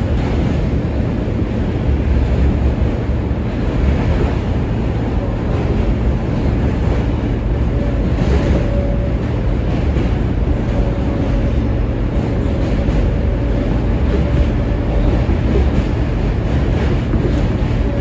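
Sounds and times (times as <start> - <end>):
subway car wheels rumbling on rail: 0.0 - 18.0.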